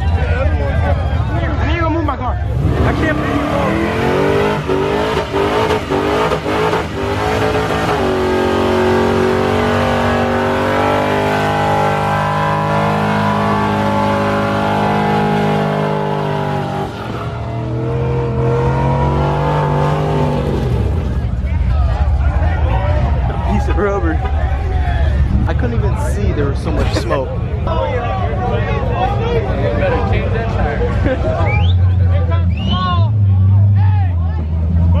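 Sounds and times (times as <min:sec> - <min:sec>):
car engine at high revs: 0:02.5 - 0:21.5.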